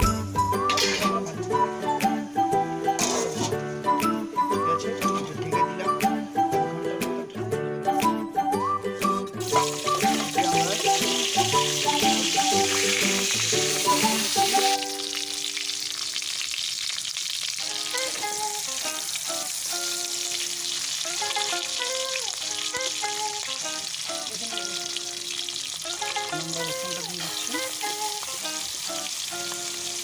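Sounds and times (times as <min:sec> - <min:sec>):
background music: 0:00.0 - 0:16.1, 0:17.6 - 0:30.0
food sizzling in hot oil: 0:09.4 - 0:30.0.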